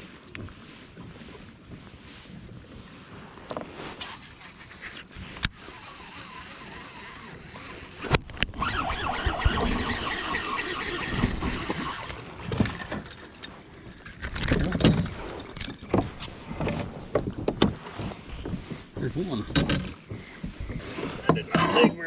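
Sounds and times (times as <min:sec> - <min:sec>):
fishing gear knocking and rattling: 0:10.9 - 0:16.4.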